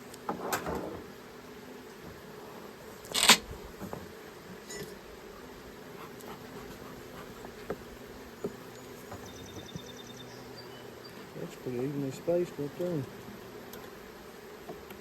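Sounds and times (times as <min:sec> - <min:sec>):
bees humming: 0:00.9 - 0:15.0.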